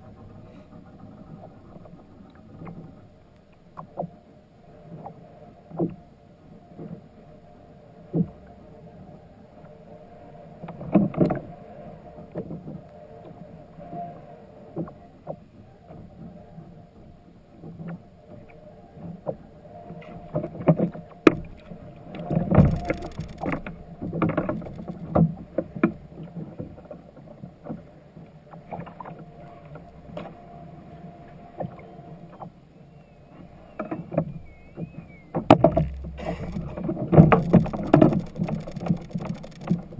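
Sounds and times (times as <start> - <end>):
faint steady hum: 28.0 - 39.9
knocks and splashes against kayak hull: 35.4 - 39.9.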